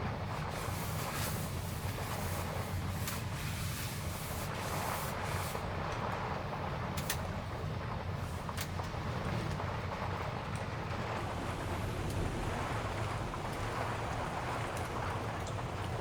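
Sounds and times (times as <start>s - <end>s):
heavy rain on camper: 10.9s - 16.0s
wind rumbling: 10.9s - 16.0s.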